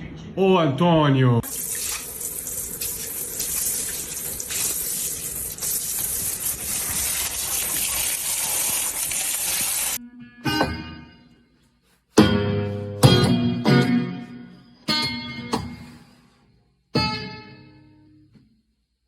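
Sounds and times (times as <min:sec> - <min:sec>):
water gushing from tap: 0:01.4 - 0:10.0.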